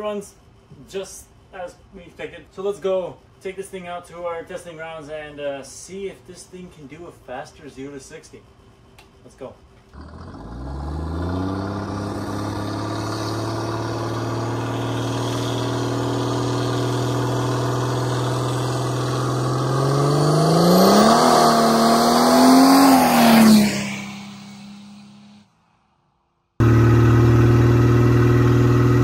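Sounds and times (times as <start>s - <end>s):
diesel car engine accelerating: 9.9s - 25.4s, 26.6s - 29.0s.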